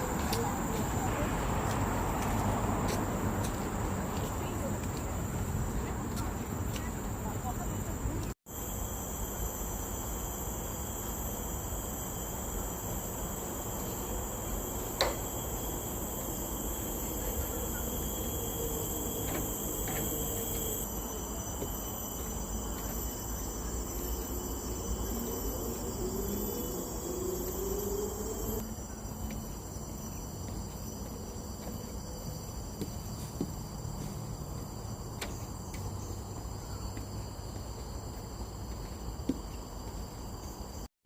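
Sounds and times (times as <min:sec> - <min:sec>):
insects shrilling: 0:08.5 - 0:31.1.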